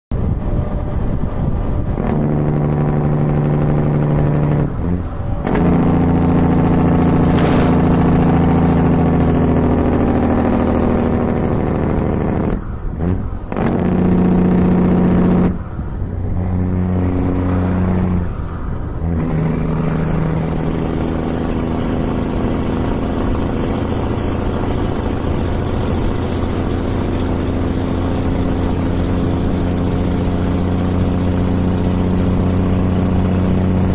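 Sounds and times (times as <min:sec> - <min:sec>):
truck engine brake buzzing drone: 0:00.3 - 0:33.9.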